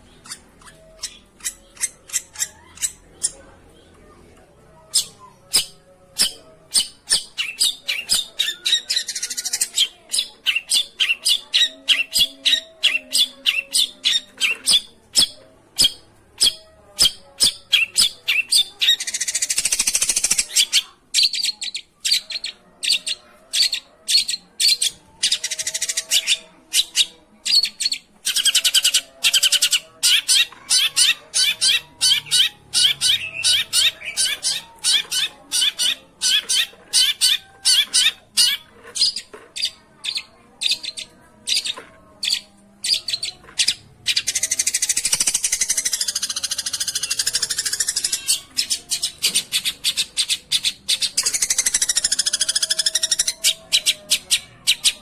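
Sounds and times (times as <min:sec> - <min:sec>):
shrike harsh chattering: 0:28.3 - 0:53.9.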